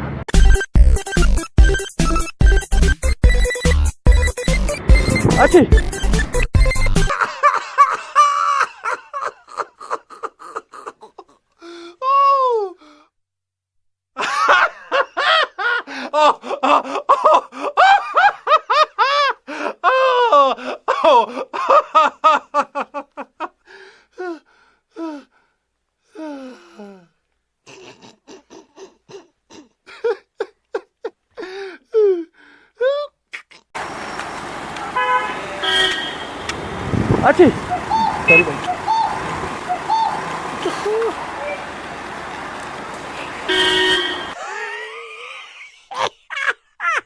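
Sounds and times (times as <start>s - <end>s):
people laughing: 7.1s - 11.2s, 37.3s - 43.6s, 44.2s - 47.0s.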